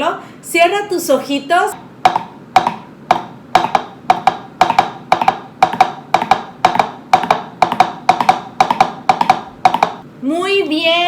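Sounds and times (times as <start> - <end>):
plastic cups knocking on table: 2.1 - 10.0.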